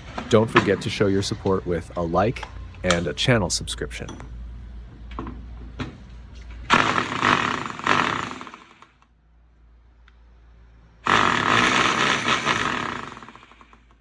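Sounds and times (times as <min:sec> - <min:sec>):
electric concrete drill running: 0:06.7 - 0:09.0, 0:11.1 - 0:14.0.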